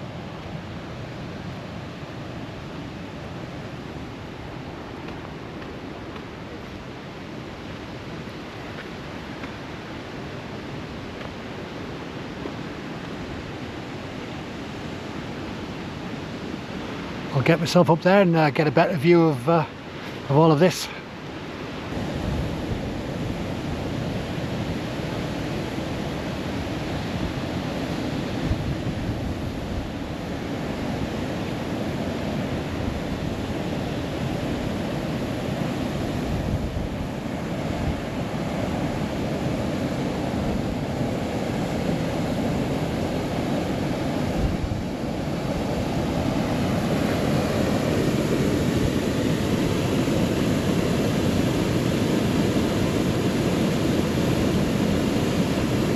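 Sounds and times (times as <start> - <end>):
flowing river water: 0.0 - 55.9
wind on microphone: 21.5 - 55.9.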